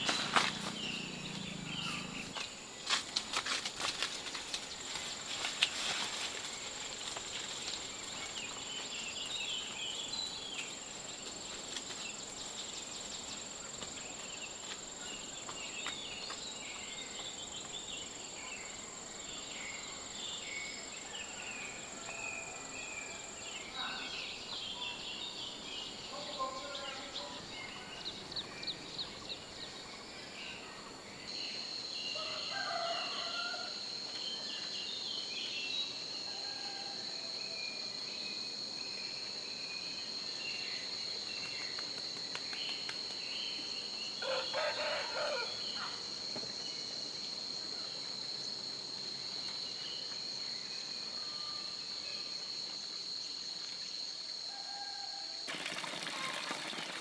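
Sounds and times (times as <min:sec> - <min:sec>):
birds chirping: 0:00.0 - 0:02.6
rooster crowing: 0:21.2 - 0:23.2, 0:32.2 - 0:33.8, 0:44.2 - 0:45.6, 0:54.5 - 0:55.4.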